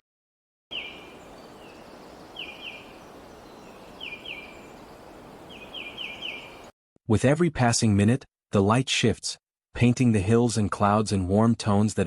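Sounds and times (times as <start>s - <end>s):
background hiss: 0.7s - 6.7s
small bird chirping: 0.7s - 6.7s.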